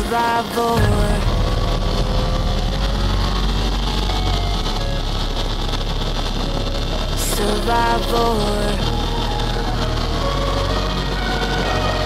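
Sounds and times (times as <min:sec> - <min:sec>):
wind rushing: 0:00.0 - 0:12.0.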